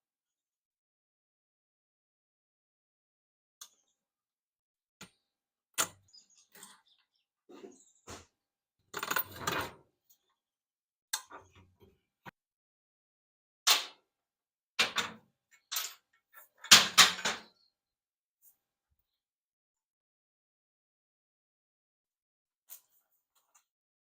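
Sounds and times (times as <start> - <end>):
metal tools clanking and knocking: 9.0 - 9.8.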